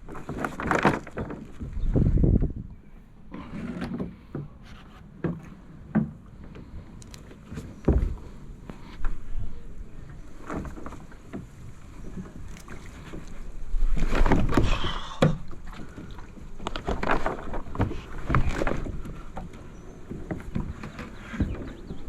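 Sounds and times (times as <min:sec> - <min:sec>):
wind rumble on microphone: 0:00.0 - 0:04.2
paddle splashing in water: 0:03.2 - 0:22.0.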